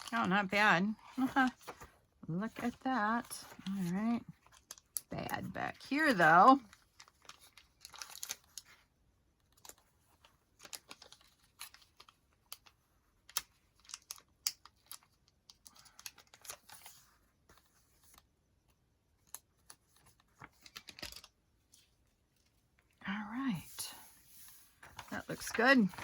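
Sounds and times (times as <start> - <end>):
paper rustling: 1.0 - 8.8, 19.2 - 22.6, 23.6 - 26.0.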